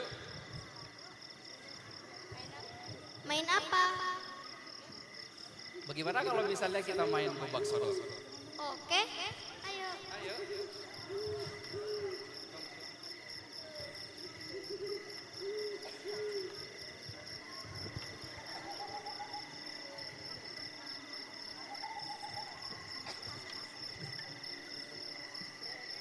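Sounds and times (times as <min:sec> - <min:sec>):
crickets chirring: 0:00.0 - 0:26.0
owl hooting: 0:10.3 - 0:12.4, 0:14.3 - 0:16.7.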